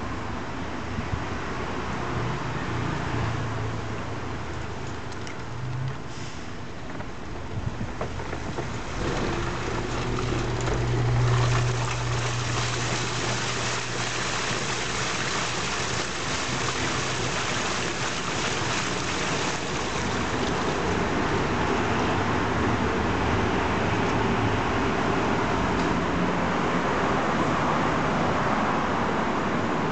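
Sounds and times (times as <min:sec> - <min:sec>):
washing machine running: 0:07.4 - 0:23.1
water splashing in drum: 0:08.0 - 0:21.6.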